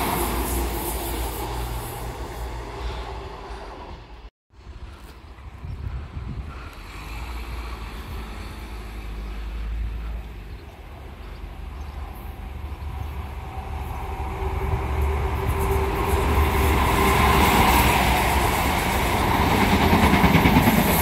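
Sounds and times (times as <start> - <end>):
diesel train engine: 0.0 - 21.0.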